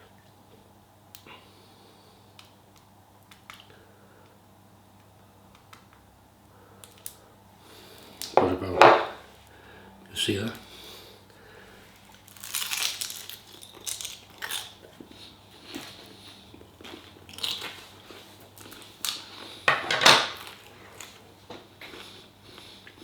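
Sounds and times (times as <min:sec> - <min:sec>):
person biting and chewing: 0:12.1 - 0:19.3.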